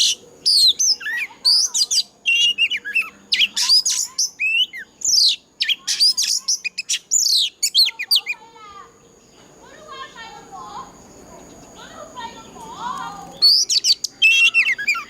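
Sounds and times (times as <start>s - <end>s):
bird singing whistled notes: 0.0s - 8.4s, 13.2s - 15.0s.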